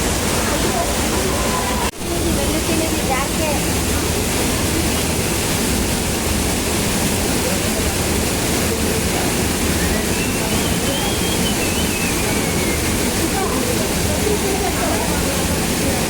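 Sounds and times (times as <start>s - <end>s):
waterfall pouring over rock: 0.0s - 16.0s.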